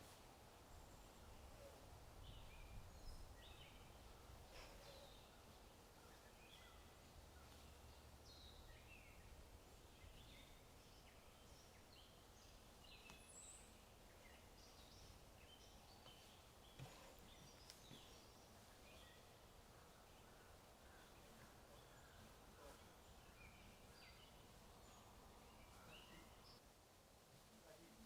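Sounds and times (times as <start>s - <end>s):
small birds chirping: 0.0s - 26.6s.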